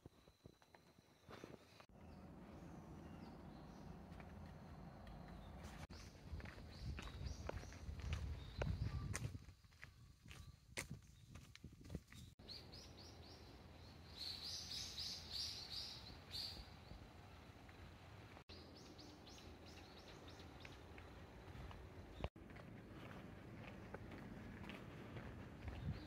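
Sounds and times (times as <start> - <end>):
footsteps on a trail: 1.2 - 12.5, 19.8 - 26.0.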